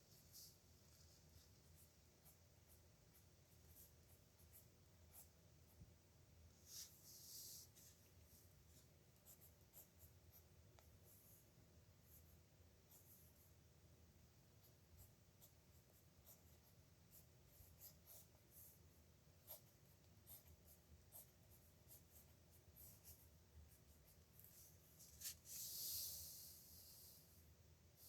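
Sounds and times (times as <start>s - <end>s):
nib pen scratching on paper: 15.4s - 18.8s, 19.4s - 25.6s.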